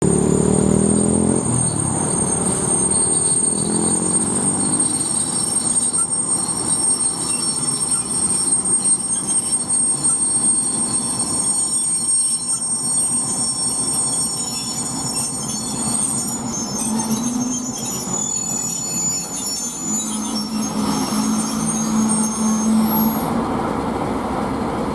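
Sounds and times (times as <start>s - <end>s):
high-pitched whine: 0.0s - 24.1s
diesel locomotive engine running: 0.0s - 24.9s.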